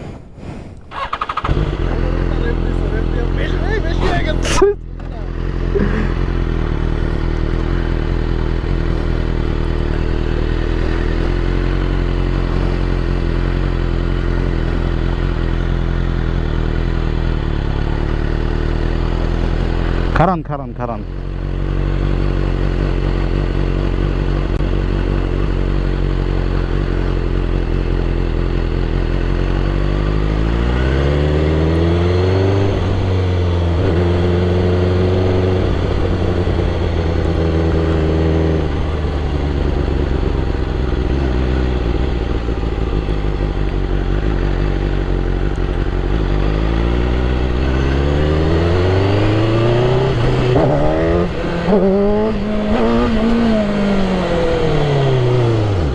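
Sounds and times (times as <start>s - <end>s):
motorcycle engine revving: 0.9s - 55.9s.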